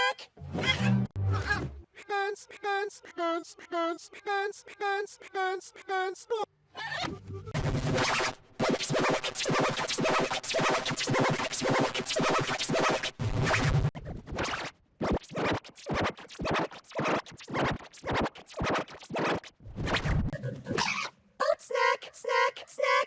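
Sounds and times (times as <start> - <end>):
electronic remix with stuttering sample: 7.4 - 21.0.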